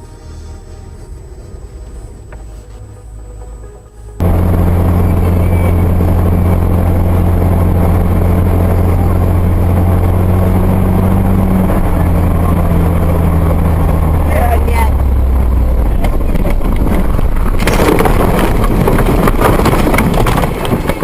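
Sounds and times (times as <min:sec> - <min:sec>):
vehicle engine and road drone: 0:00.0 - 0:21.0.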